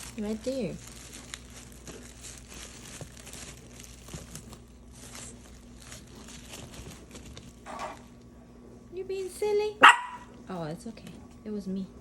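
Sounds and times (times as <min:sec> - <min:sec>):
plastic bags rustling: 0:00.0 - 0:08.2.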